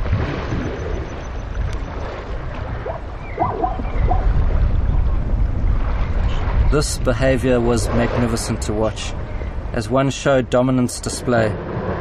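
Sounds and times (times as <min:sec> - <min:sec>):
water splashing: 0:00.0 - 0:12.0
elephants rumbling: 0:01.9 - 0:04.7.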